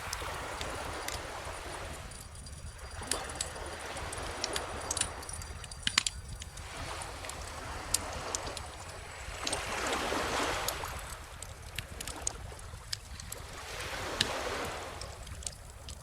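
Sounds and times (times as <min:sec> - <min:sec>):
ocean waves breaking: 0:00.0 - 0:16.0
bonfire crackling and popping: 0:04.4 - 0:09.0.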